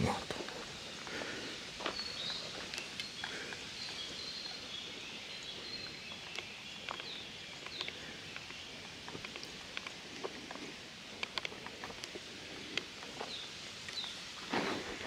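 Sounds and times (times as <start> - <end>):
faint songbirds whistling: 0.7 - 9.7, 12.4 - 14.3.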